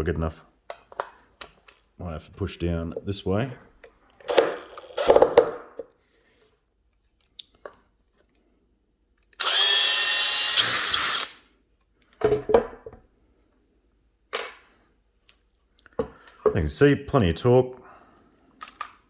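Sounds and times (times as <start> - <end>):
drill motor whirring: 9.4 - 11.4.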